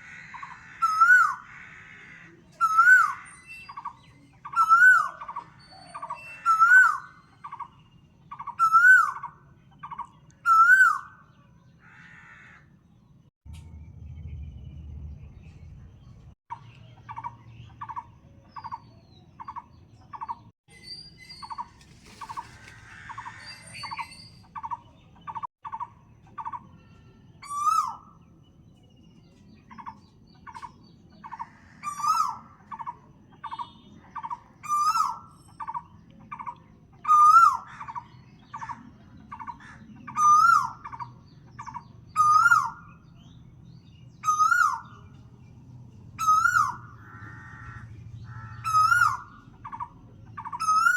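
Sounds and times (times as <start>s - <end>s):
rising and falling bird call: 31.3s - 45.5s, 46.2s - 50.9s.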